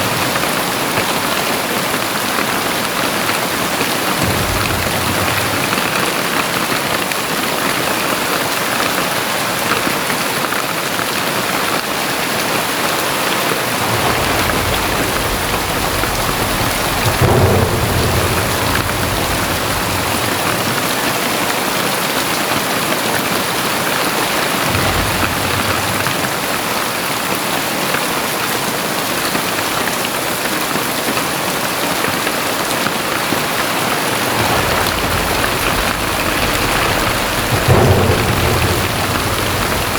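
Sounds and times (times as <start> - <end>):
low rumble of thunder: 0.0 - 7.8, 13.4 - 27.5, 32.4 - 39.9
heavy rain falling: 0.0 - 39.9.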